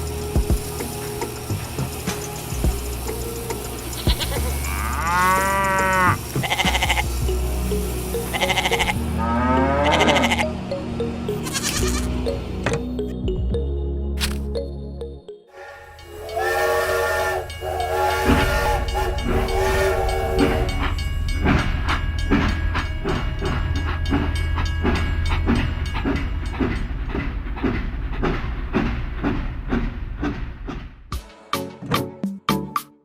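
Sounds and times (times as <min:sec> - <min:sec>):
rhythmic chugging: 0:00.0 - 0:13.4, 0:15.5 - 0:31.6
chord whistle: 0:15.6 - 0:20.9.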